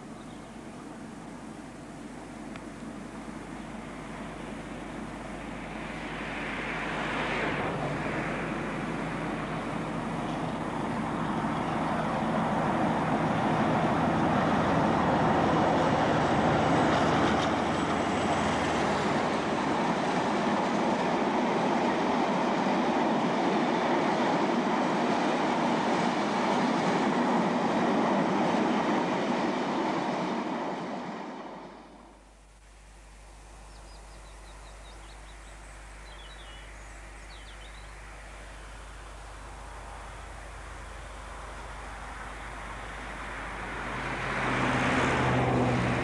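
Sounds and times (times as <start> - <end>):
diesel locomotive engine passing: 0.0 - 32.3, 34.2 - 46.0
tank wagons rumbling by: 9.5 - 21.1.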